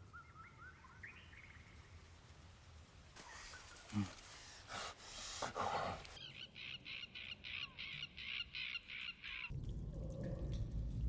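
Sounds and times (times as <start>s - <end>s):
low rumble: 9.5s - 11.0s.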